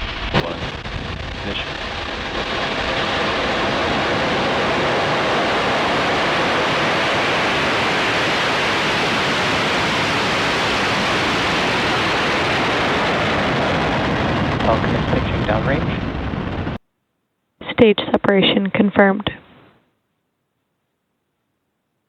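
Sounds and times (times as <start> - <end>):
rocket engines roaring: 0.0 - 16.8.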